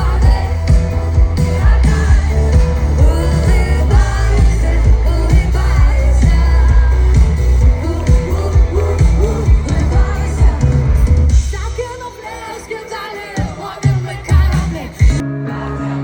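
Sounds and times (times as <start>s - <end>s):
loud bass: 0.0s - 11.8s
steady drum beat: 0.0s - 12.2s
person singing: 0.0s - 16.0s.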